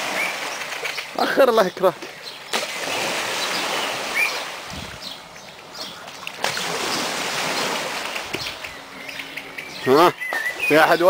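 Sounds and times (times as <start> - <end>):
splashing water: 0.0 - 5.0, 5.6 - 8.8
faint bird chirps: 8.4 - 11.0.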